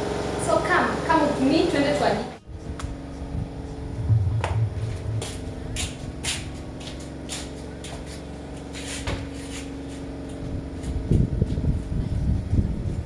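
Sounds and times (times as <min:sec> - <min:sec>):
spin dryer humming: 0:00.0 - 0:08.0.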